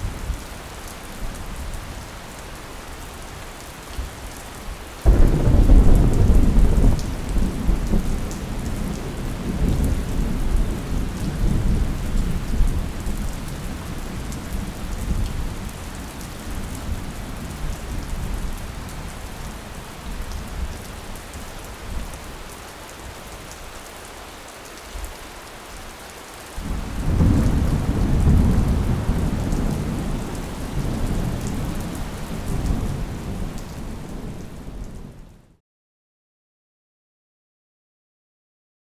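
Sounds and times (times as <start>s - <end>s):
steady rain falling: 0.0s - 35.6s
rolling thunder: 5.1s - 15.7s, 26.6s - 35.2s.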